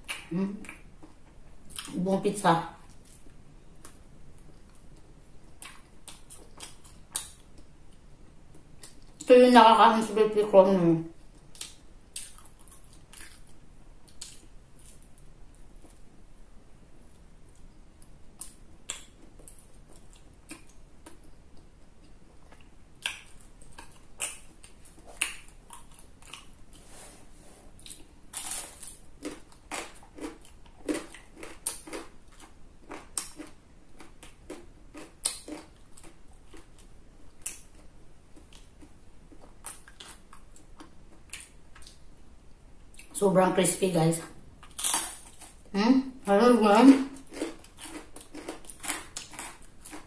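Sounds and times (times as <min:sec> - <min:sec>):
person chewing crispy food: 0:02.9 - 0:09.2, 0:11.3 - 0:16.0, 0:17.5 - 0:26.9, 0:27.7 - 0:42.0, 0:44.6 - 0:45.7, 0:46.9 - 0:50.0.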